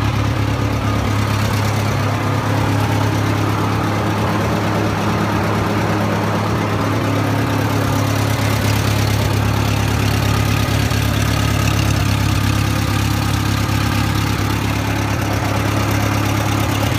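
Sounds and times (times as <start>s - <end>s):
engine idling: 0.0s - 16.9s.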